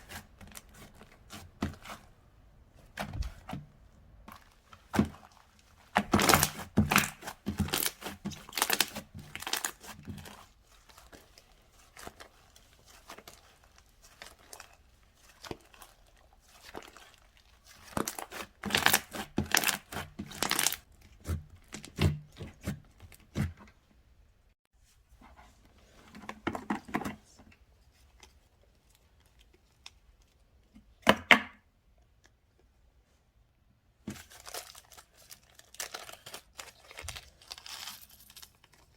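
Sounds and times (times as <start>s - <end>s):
slime crinkling and crackling: 2.9s - 23.4s, 34.1s - 38.9s.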